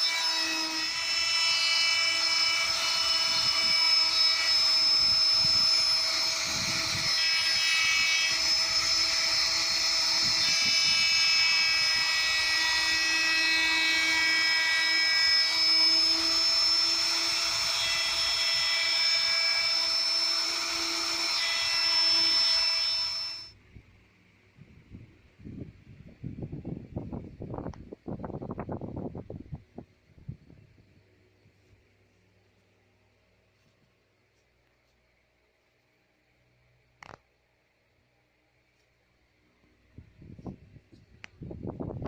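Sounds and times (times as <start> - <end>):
power tool motor whining: 0.0 - 23.6.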